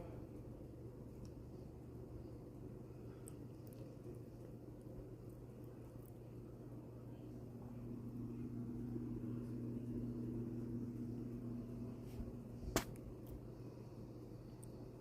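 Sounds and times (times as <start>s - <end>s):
sharp snap: 12.7s - 13.1s.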